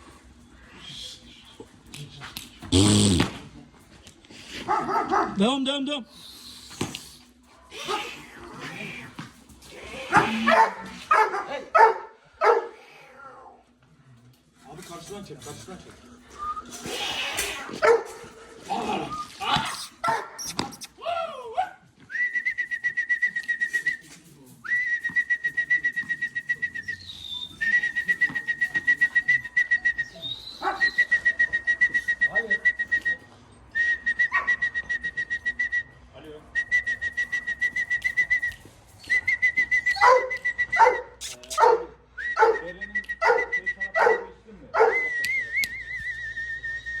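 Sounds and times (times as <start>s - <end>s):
puppy yipping and barking: 19.6s - 20.8s, 40.0s - 41.8s.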